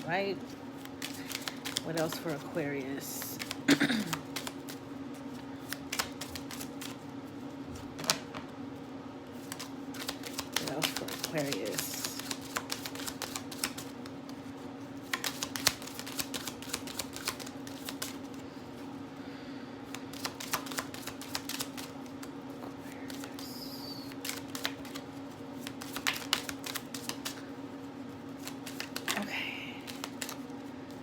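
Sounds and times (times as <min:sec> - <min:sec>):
cards being shuffled: 0:00.4 - 0:07.0, 0:09.4 - 0:18.4, 0:19.8 - 0:27.5, 0:28.3 - 0:31.0.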